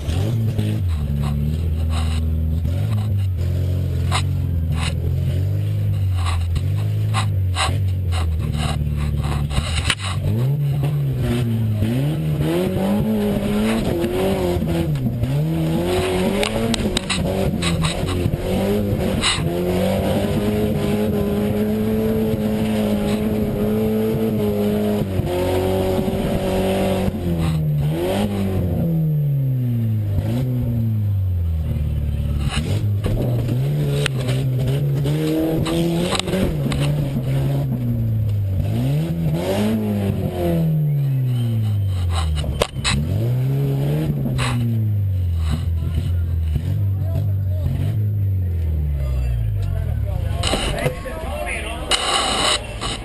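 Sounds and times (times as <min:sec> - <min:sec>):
truck engine revving: 0:00.0 - 0:53.0
truck knocks and rattles: 0:12.9 - 0:24.3.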